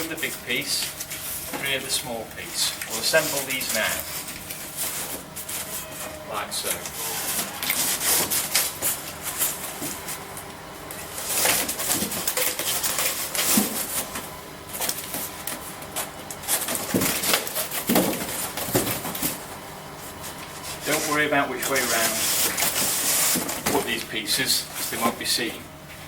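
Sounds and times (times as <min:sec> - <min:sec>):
cardboard scraping and rustling: 0:02.6 - 0:10.3, 0:11.0 - 0:19.4, 0:20.1 - 0:24.0.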